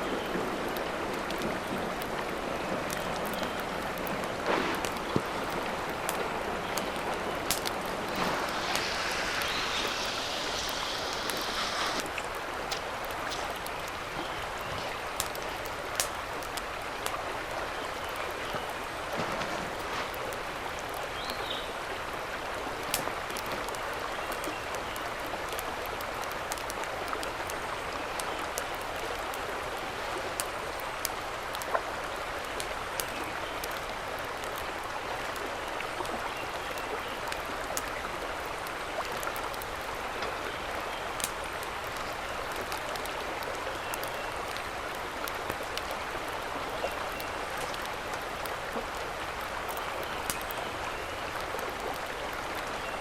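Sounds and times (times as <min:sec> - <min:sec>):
mountain stream rushing: 0:00.0 - 0:53.0
sharp pops and clicks: 0:04.1 - 0:14.0, 0:15.2 - 0:17.2, 0:41.2 - 0:41.4.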